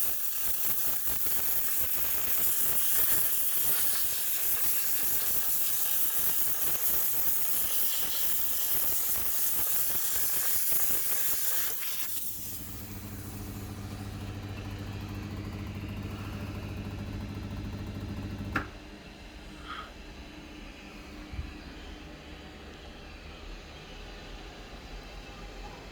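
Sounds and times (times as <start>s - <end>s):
steam cleaner hissing: 0.0s - 17.6s
steady low hum: 12.2s - 23.6s.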